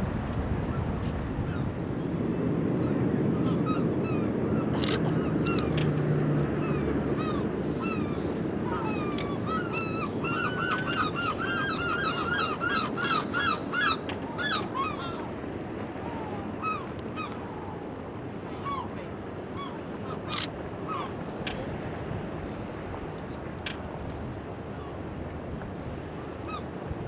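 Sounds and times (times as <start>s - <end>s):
flock of birds calling: 2.4s - 22.0s.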